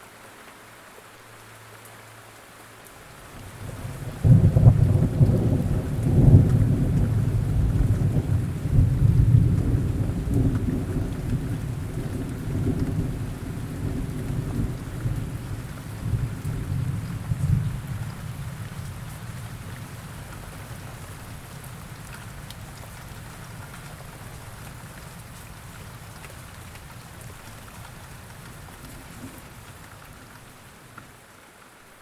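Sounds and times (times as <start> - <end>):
steady rain falling: 0.0 - 32.0
thunder rumbling: 3.4 - 20.8.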